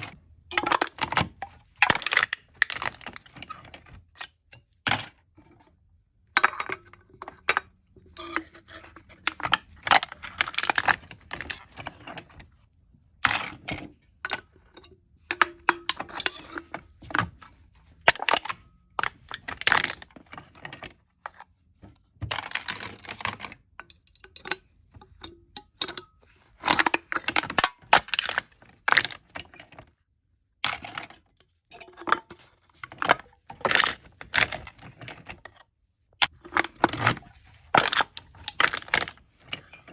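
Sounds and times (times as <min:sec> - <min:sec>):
drink cans being crushed: 0:00.0 - 0:04.3, 0:18.0 - 0:20.8, 0:25.3 - 0:29.5, 0:31.8 - 0:35.3, 0:36.2 - 0:39.9.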